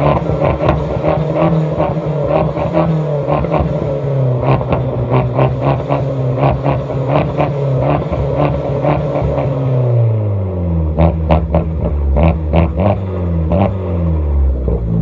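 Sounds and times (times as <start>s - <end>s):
exhaust pops and crackle: 0.0s - 2.8s
car engine revving: 0.0s - 15.0s.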